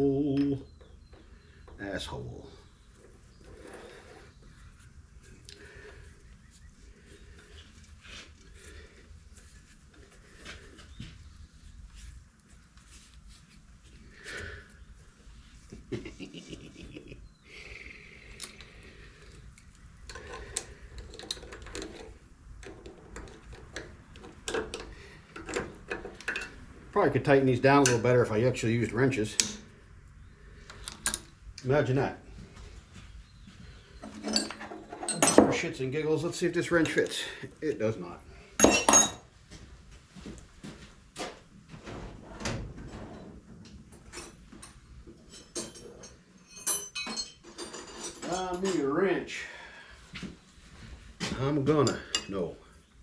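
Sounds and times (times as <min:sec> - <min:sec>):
metal pipe fittings clinking: 0:24.5 - 0:26.6, 0:34.0 - 0:35.6, 0:38.6 - 0:39.2, 0:44.2 - 0:49.0.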